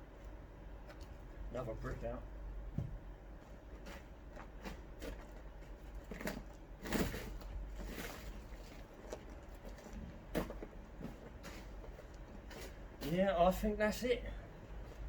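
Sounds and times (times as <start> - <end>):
hands rummaging through compost: 3.4 - 15.0.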